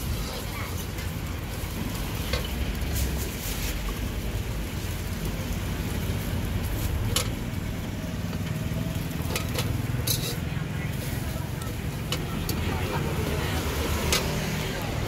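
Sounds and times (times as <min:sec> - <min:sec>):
metal spatula scraping wok: 0:00.0 - 0:04.2, 0:08.2 - 0:15.0
omelette sizzling in hot oil: 0:00.0 - 0:15.0.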